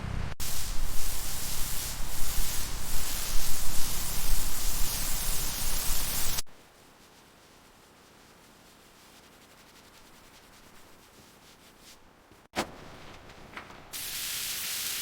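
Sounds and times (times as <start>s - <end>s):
hissing spray: 0.4s - 6.5s, 14.0s - 15.0s.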